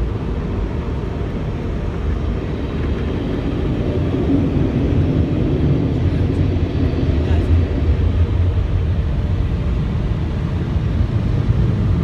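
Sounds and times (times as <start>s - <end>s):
muffled car wash machinery rumble: 0.0s - 12.0s.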